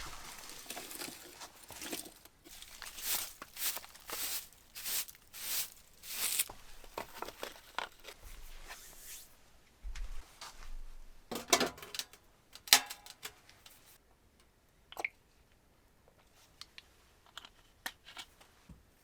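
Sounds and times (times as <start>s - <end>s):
rustling and crackling: 0.0s - 8.9s
sharp clicks and light knocks: 11.4s - 13.8s.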